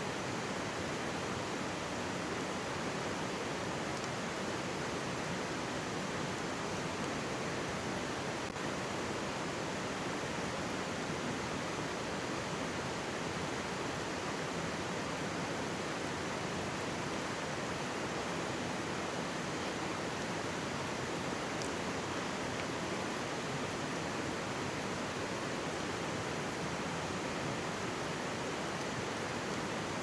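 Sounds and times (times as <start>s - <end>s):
mountain stream babbling: 0.1s - 30.0s
faint click: 3.9s - 4.2s, 21.6s - 21.8s.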